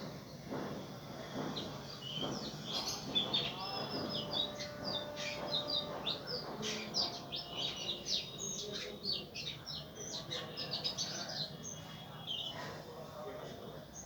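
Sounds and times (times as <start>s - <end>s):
faint background noise: 0.0s - 14.0s
birds chirping: 0.2s - 14.0s.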